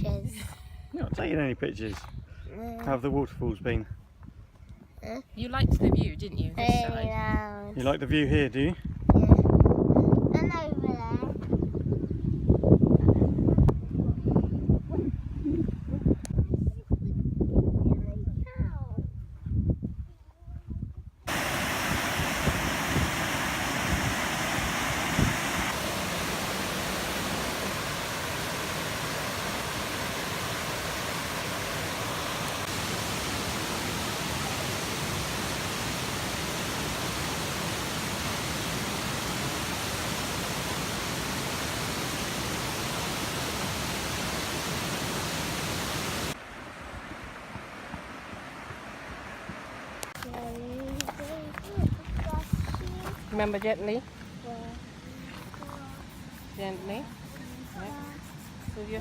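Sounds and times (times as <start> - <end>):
waterfall roaring: 21.3 - 50.2.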